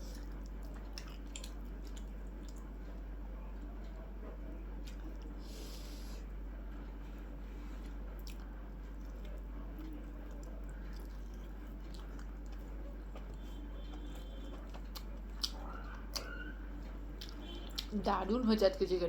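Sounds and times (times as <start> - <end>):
person chewing food: 0.0 - 3.0, 4.8 - 6.3, 6.9 - 16.5, 17.1 - 17.9
steady low hum: 0.0 - 19.0.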